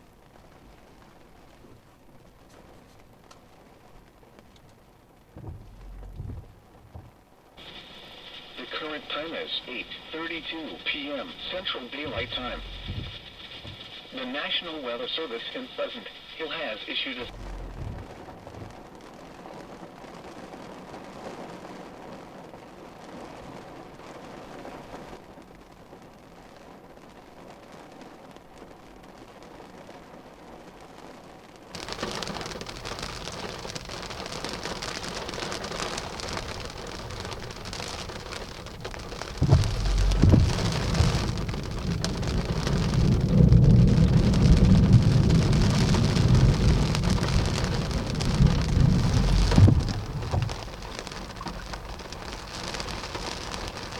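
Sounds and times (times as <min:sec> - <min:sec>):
heavy rain pouring: 0:00.0 - 0:53.9
deep thunder rumble: 0:05.2 - 0:07.2, 0:11.3 - 0:14.0, 0:17.3 - 0:19.0, 0:31.8 - 0:53.9.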